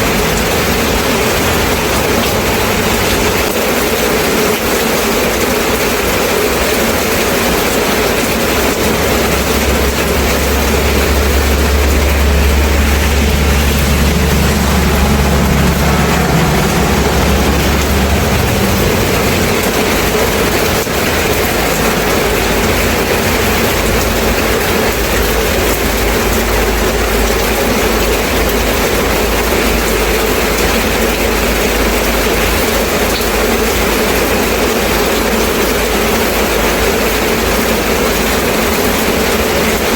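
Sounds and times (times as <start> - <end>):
steady rain falling: 0.0 - 39.9
deep low rumble: 8.2 - 30.0.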